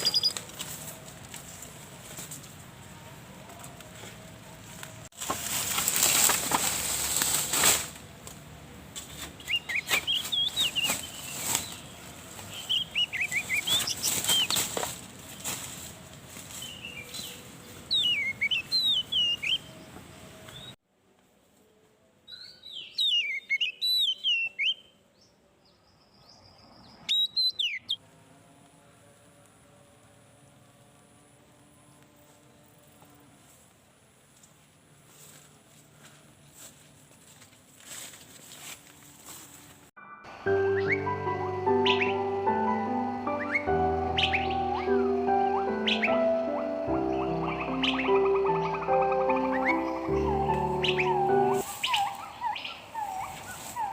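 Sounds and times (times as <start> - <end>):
birds chirping: 0.0 - 0.6, 9.2 - 15.6, 16.5 - 20.8, 22.4 - 28.0, 40.4 - 53.9
loud rustling crackling: 5.0 - 8.2, 9.3 - 17.2.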